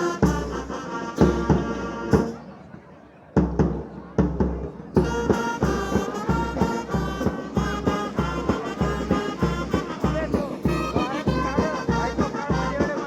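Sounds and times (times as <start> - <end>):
driving drum beat: 0.0 - 2.5, 3.4 - 13.0
lively brass band music: 0.0 - 2.8, 3.6 - 13.0.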